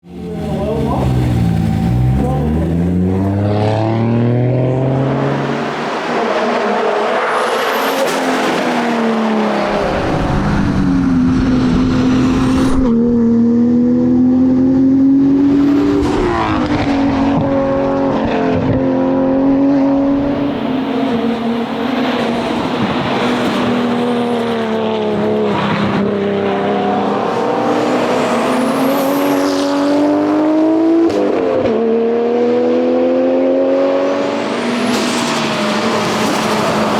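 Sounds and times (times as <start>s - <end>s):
car engine revving through gears: 0.1s - 36.9s.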